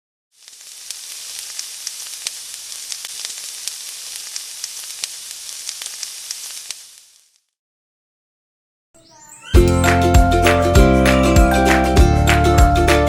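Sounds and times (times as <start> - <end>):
food frying in hot oil: 0.3 - 7.5.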